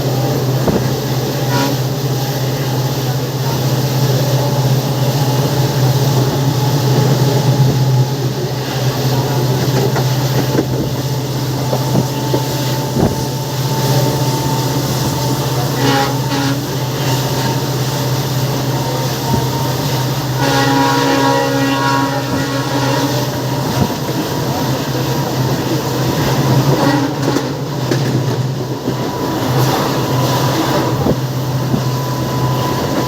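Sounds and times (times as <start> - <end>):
diesel locomotive engine drone: 0.0 - 33.0
multi-tone train horn: 0.1 - 3.4, 11.4 - 27.9
rail clatter: 2.5 - 20.1, 21.9 - 33.0.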